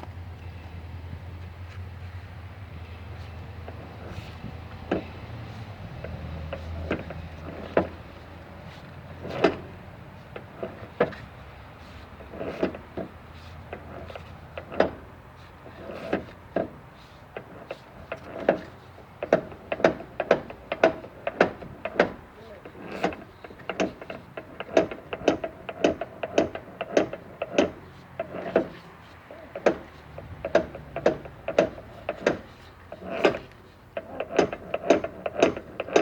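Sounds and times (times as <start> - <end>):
tools knocking and clanking on metal: 4.8 - 5.2, 6.0 - 8.0, 8.8 - 9.7, 10.3 - 11.2, 11.8 - 36.0.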